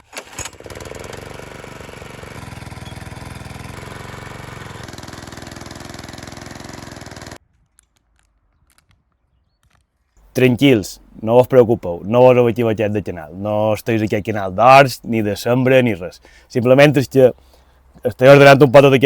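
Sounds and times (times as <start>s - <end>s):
small petrol engine running: 0.0s - 7.4s.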